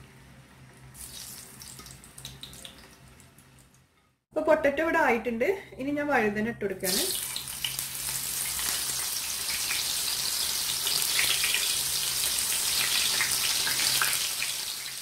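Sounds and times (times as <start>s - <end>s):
eggplant sizzling in hot oil: 0.9s - 3.0s, 6.9s - 15.0s.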